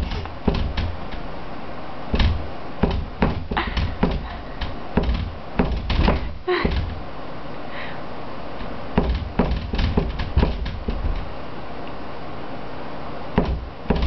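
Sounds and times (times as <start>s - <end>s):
door knocking against frame: 0.0s - 1.2s, 2.1s - 7.0s, 9.0s - 11.3s, 13.4s - 14.0s.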